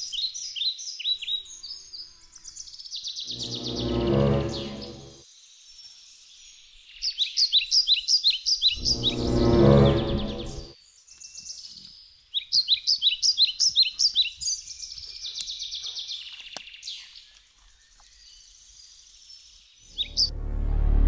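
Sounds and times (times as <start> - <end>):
songbirds singing: 0.0 - 4.0, 5.3 - 9.2, 9.8 - 20.3.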